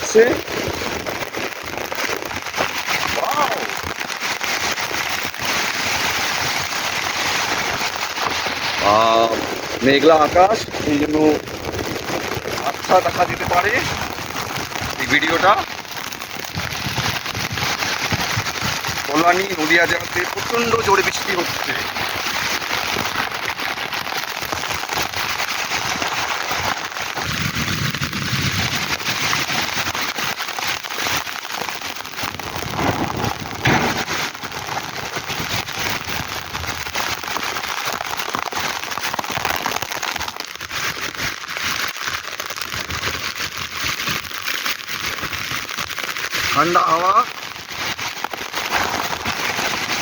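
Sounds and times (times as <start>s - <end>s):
heavy rain on roof: 0.0s - 50.0s
low rumbles: 32.5s - 34.4s.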